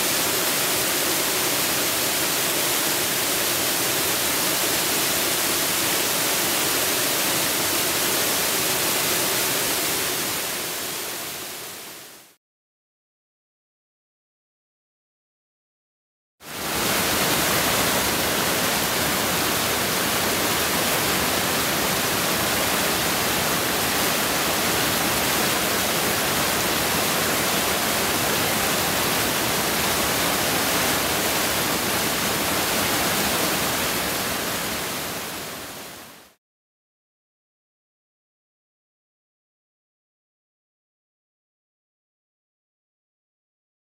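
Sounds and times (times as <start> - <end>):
waterfall pouring: 16.6 - 35.7.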